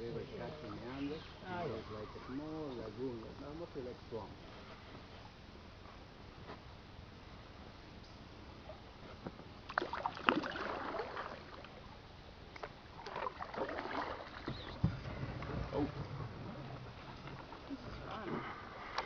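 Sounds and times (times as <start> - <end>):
paddle splashing water: 9.6 - 19.0
knocks against canoe: 14.4 - 16.5
low rumble: 14.8 - 19.0.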